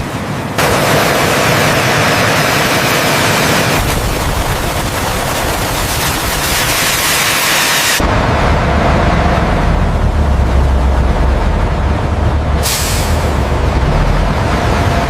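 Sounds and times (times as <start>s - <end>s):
loud rushing hiss: 0.6s - 8.0s, 12.6s - 13.4s
deep rumble: 8.0s - 15.0s.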